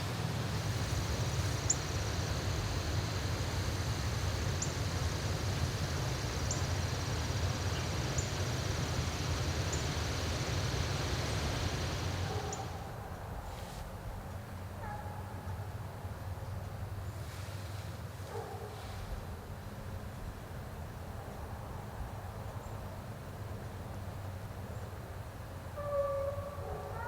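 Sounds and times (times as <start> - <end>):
high insect trill: 0.7 - 12.2.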